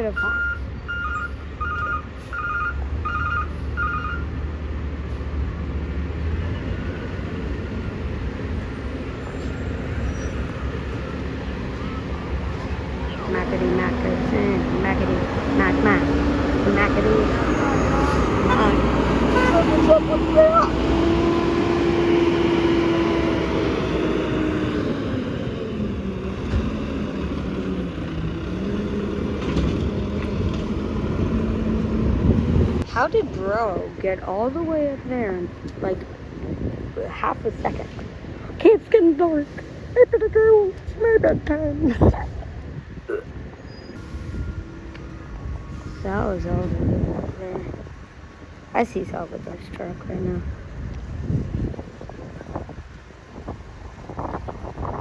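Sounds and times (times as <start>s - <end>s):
truck backup alarm beeping: 0.0s - 4.4s, 9.2s - 27.3s, 43.6s - 46.6s
truck engine rumble: 0.0s - 55.0s.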